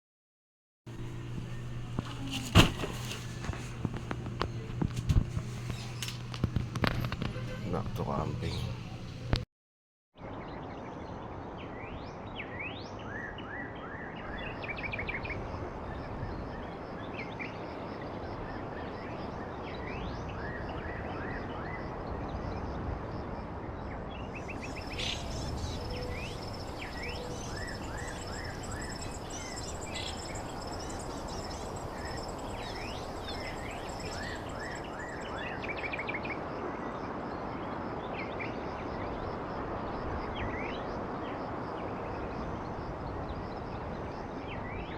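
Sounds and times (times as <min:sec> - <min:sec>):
birds chirping and trilling: 0:05.4 - 0:09.3, 0:24.2 - 0:36.5
high-pitched insect drone: 0:24.6 - 0:35.3.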